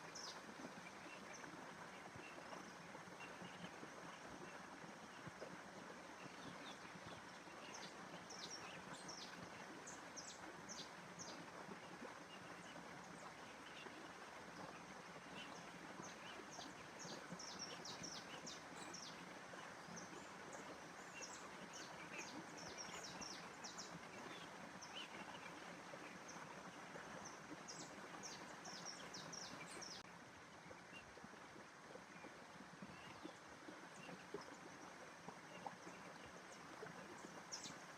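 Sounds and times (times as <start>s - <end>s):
small birds chirping: 27.2s - 30.0s.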